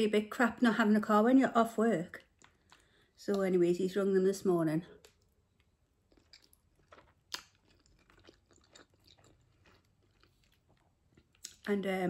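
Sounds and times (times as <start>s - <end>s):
close-up chewing: 2.2s - 3.2s, 4.9s - 11.7s.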